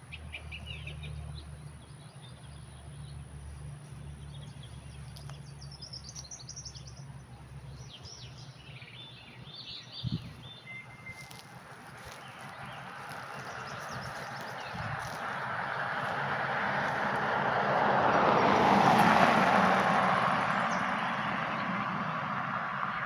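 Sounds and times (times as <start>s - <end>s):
birds chirping and calling: 0.0s - 22.2s.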